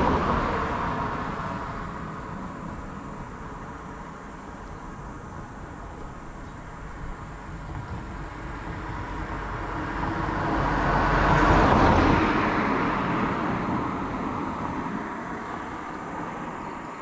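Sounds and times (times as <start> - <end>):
car passing by: 0.0 - 4.0, 7.6 - 17.0.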